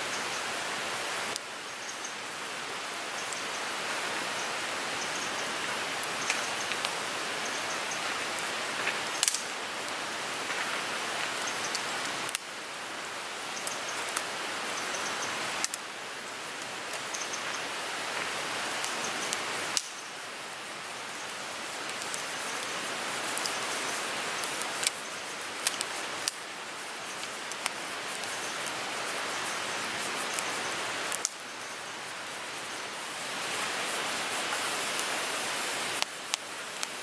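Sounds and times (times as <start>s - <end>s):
wood fire hissing and crackling: 0.0s - 37.0s.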